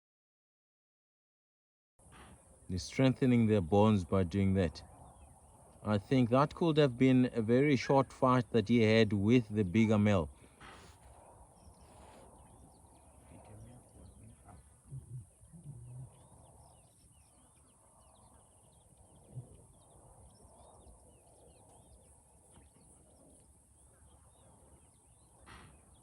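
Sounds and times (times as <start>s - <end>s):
faint birds chirping: 2.0s - 26.0s
impala alarm snorts: 2.1s - 2.6s, 10.4s - 17.4s.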